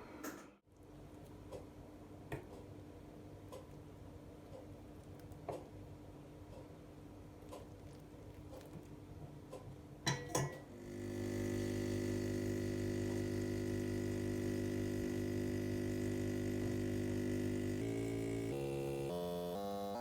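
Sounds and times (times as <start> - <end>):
espresso machine pump humming: 10.7 - 20.0
music: 18.6 - 20.0.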